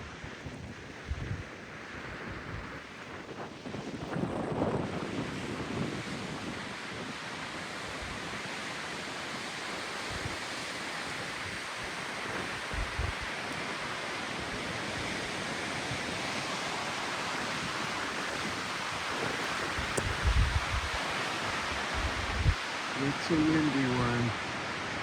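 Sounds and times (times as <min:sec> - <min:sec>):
wind buffeting microphone: 0:00.0 - 0:24.3
gusting wind rushing: 0:00.0 - 0:25.0.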